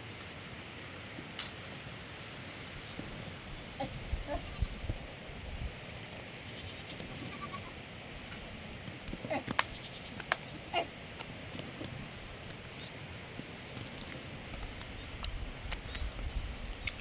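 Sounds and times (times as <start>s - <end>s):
faint livestock bleats: 3.8s - 5.0s, 6.5s - 8.4s.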